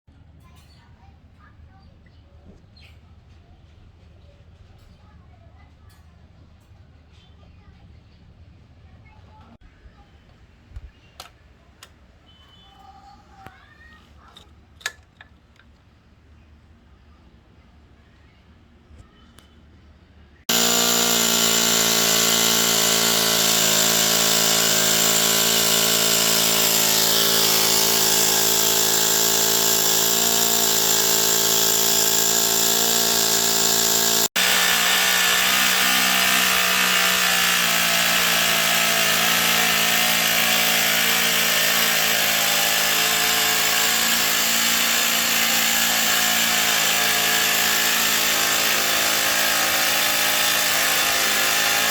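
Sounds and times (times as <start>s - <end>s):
model engine running: 20.5s - 51.9s.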